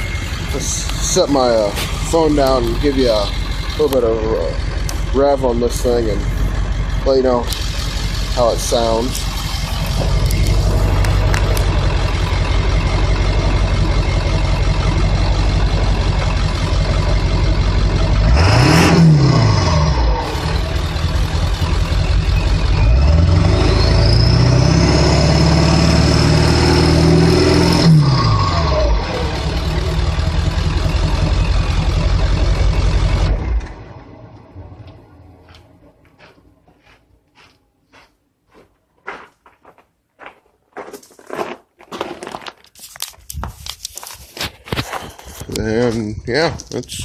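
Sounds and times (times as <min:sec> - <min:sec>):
turbo whine: 0:00.0 - 0:35.1
diesel engine idling and revving: 0:00.0 - 0:36.6.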